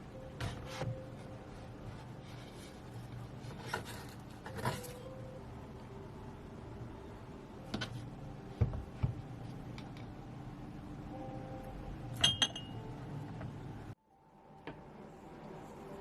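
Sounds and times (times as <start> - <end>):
glass and dishes clinking: 12.2 - 12.8.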